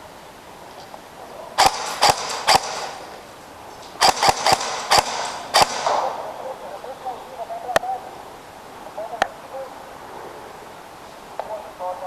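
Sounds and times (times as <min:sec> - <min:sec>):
airsoft guns firing single shots: 0:01.6 - 0:06.3.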